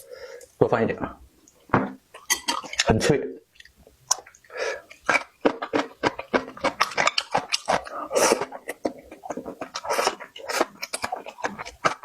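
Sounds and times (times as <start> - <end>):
chewing crunchy food: 3.6 - 12.0.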